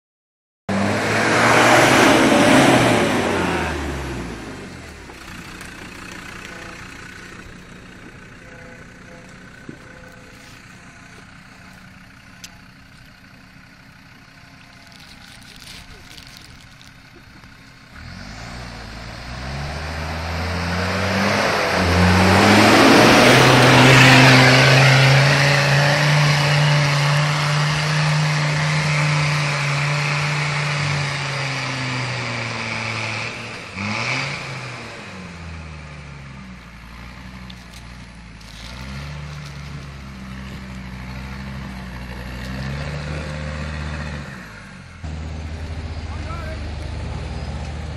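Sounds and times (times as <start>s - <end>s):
off-road engine revving hard: 0.7s - 5.4s, 17.9s - 47.9s.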